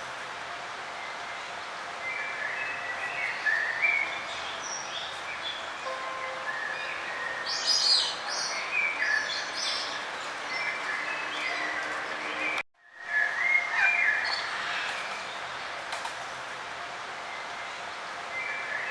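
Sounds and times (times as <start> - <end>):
steady background hiss: 0.0 - 10.5
songbirds chirping: 0.6 - 18.9.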